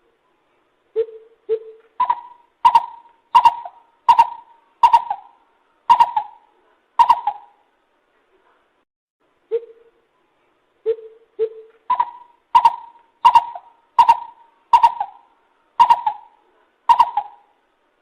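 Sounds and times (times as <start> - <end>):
bird hooting calls: 0.9 - 7.6, 10.8 - 17.6.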